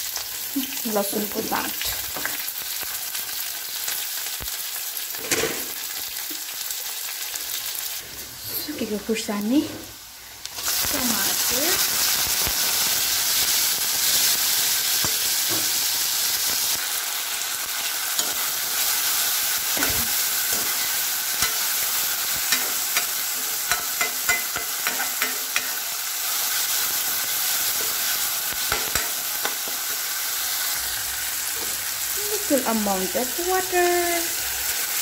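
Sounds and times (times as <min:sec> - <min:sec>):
vegetables sizzling in oil: 0:00.0 - 0:35.0
steel spoon clinking and scraping pan: 0:18.2 - 0:18.5, 0:19.8 - 0:26.0, 0:27.7 - 0:30.1.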